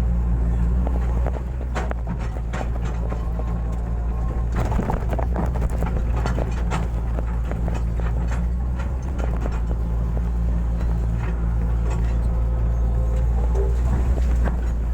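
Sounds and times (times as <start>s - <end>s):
excavator diesel engine running: 0.0s - 14.9s
knocks and clatter of working gear: 0.7s - 14.9s.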